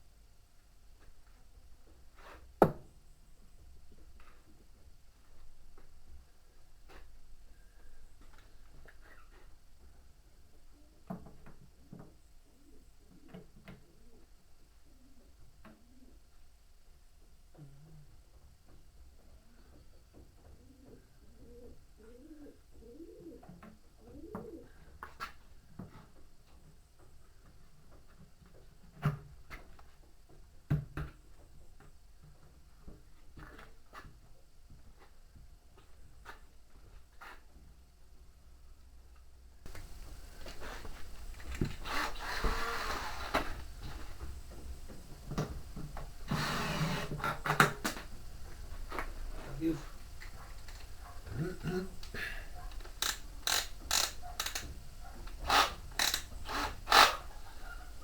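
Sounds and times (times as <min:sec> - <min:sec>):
pigeon cooing: 0:20.5 - 0:24.9.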